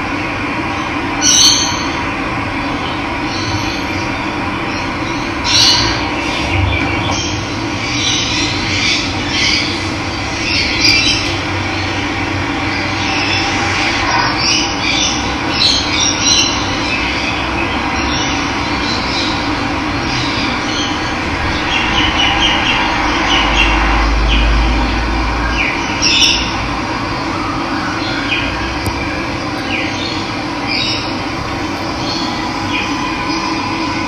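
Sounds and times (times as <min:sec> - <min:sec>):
birds chirping and squawking: 0:01.2 - 0:02.0, 0:02.8 - 0:26.6, 0:29.6 - 0:34.0
low rumble: 0:05.8 - 0:15.4, 0:19.3 - 0:27.2, 0:31.0 - 0:34.0.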